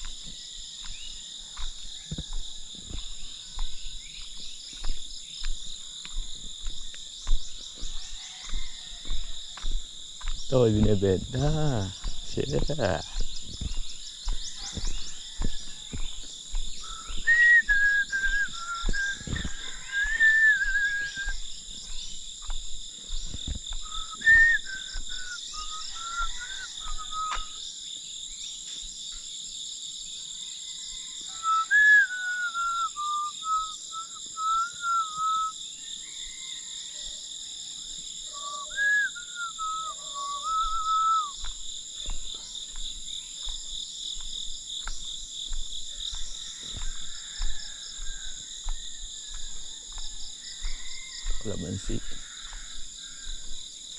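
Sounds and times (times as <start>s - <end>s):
high drone of insects: 0.0s - 53.9s
person whistling a tune: 17.1s - 21.4s, 23.8s - 27.6s, 31.5s - 35.6s, 38.4s - 41.4s.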